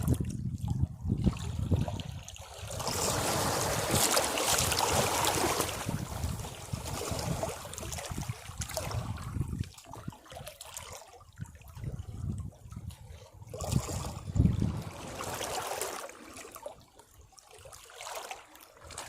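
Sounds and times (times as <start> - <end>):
sea waves washing against rocks: 2.6 - 9.5.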